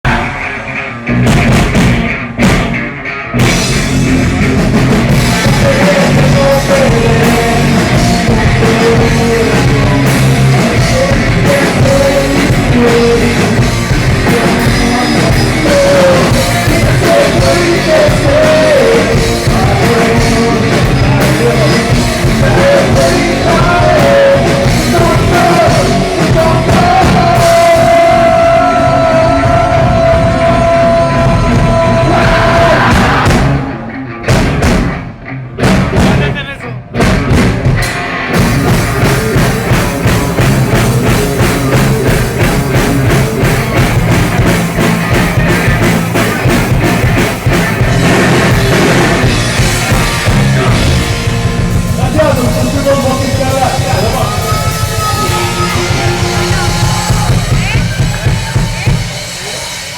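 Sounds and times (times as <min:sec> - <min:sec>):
rock band playing loud: 0:00.0 - 0:59.9
drum hits: 0:01.2 - 0:33.7, 0:34.3 - 0:59.9.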